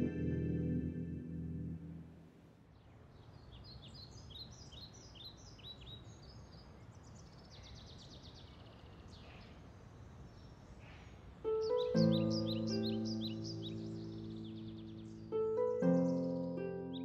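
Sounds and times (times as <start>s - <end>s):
songbirds chirping: 0.0s - 17.0s
bird trill: 11.4s - 17.0s.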